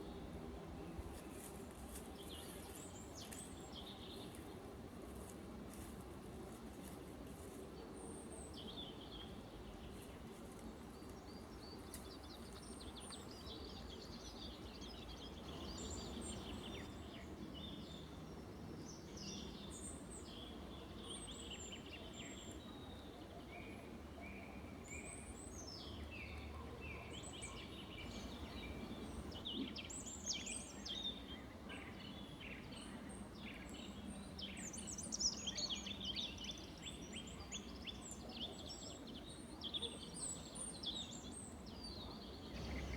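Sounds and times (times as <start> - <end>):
low steady background noise: 0.0 - 42.9
birds chirping and trilling: 15.5 - 16.9, 27.9 - 29.4, 42.5 - 42.9.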